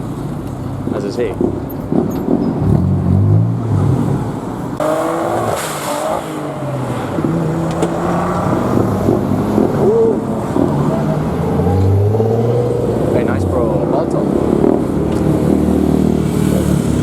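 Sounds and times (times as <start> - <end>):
car engines running at low revs: 0.0 - 17.0.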